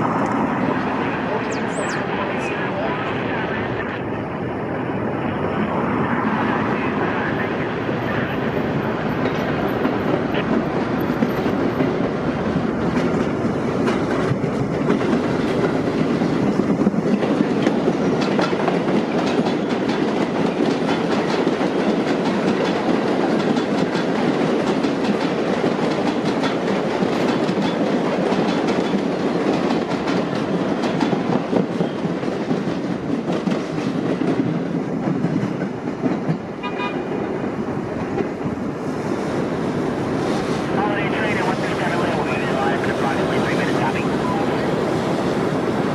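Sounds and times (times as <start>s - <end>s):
subway train rattling on rails: 0.0s - 45.9s
short pitched tone: 1.3s - 2.5s.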